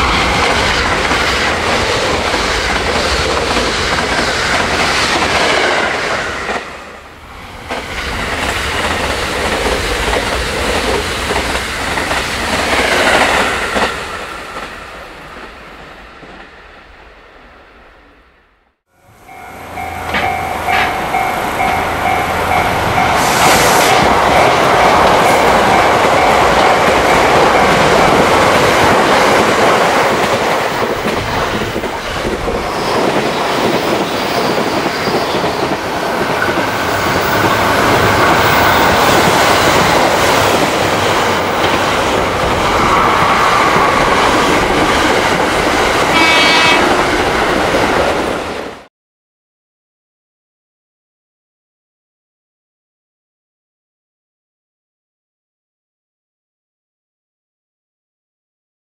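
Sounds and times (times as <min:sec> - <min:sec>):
train rushing past: 0:00.0 - 0:48.9
brief high-pitched tone: 0:19.0 - 0:24.0.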